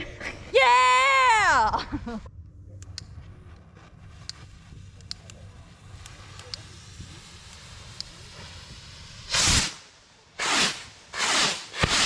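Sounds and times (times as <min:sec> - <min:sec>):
firework rockets whooshing: 0:03.9 - 0:12.0.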